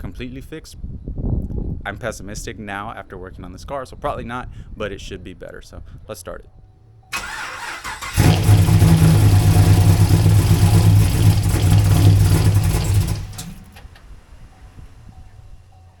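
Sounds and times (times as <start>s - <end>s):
car engine running loudly: 7.2s - 15.7s.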